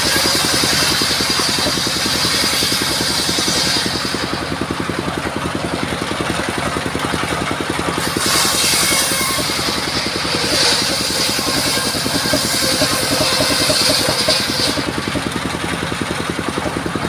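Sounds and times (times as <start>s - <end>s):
saw blade cutting wood: 0.0s - 17.0s
sawmill engine running: 0.0s - 17.0s.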